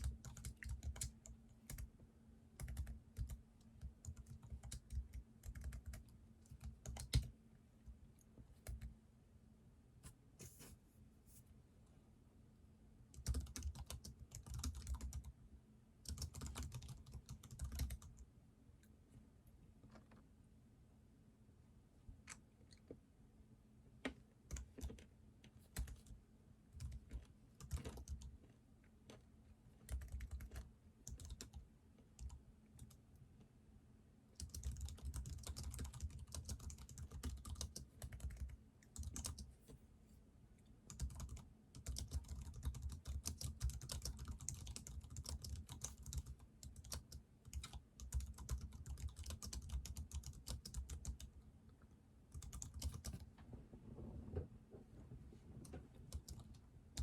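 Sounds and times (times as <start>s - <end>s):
typing on computer keyboard: 0.0s - 1.9s, 2.6s - 7.3s, 13.1s - 15.3s, 16.0s - 18.3s, 24.5s - 25.1s, 25.7s - 26.2s, 26.8s - 28.4s, 29.8s - 33.0s, 34.4s - 39.5s, 40.9s - 51.3s, 52.3s - 53.3s, 56.1s - 57.0s.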